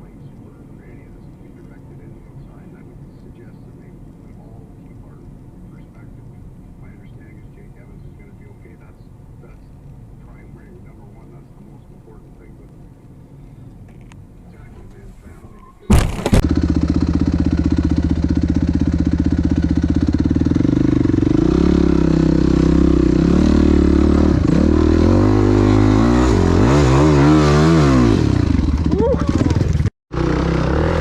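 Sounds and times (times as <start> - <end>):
vehicle engine revving: 16.0 - 31.0.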